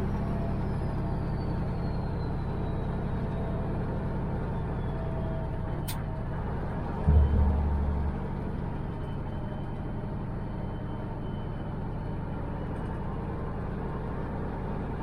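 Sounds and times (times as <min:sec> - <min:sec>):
diesel truck engine rumbling: 0:00.0 - 0:15.0
faint turbo whistle: 0:07.0 - 0:11.7.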